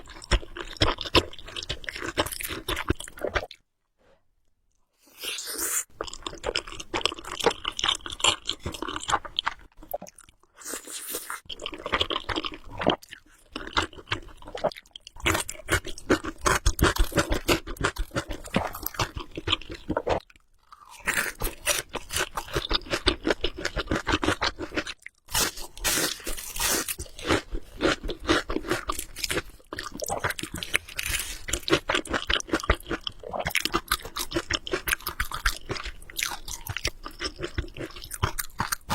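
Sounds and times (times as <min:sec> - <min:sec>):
wet chewing and smacking: 0:00.0 - 0:03.6, 0:11.4 - 0:25.3, 0:26.3 - 0:38.9.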